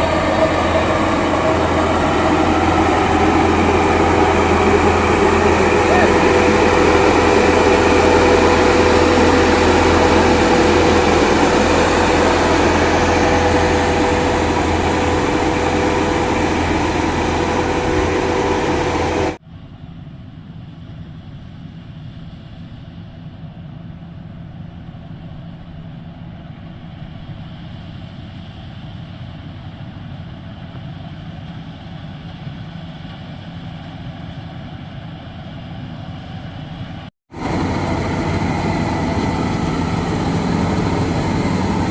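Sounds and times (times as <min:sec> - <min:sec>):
constant whining tone: 0:00.0 - 0:19.4, 0:37.3 - 0:41.9
combine harvester running: 0:00.0 - 0:41.9.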